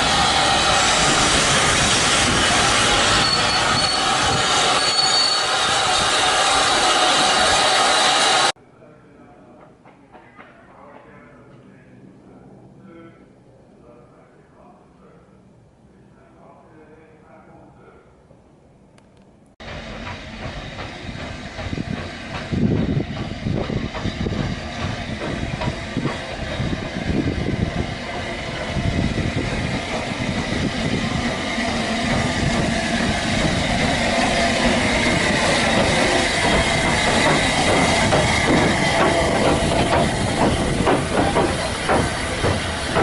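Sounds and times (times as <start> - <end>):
steam train rumbling and hissing: 0.0 - 8.6, 19.6 - 43.0
train wheel clicks: 19.0 - 26.6, 31.2 - 43.0.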